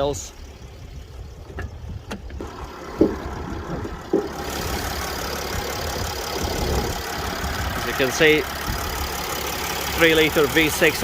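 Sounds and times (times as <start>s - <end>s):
diesel engine idling: 0.0s - 11.0s
sharp thumps: 1.4s - 4.8s.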